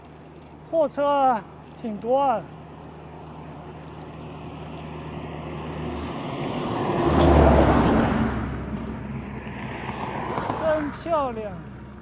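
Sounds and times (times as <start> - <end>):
heavy truck passing: 2.5 - 12.0.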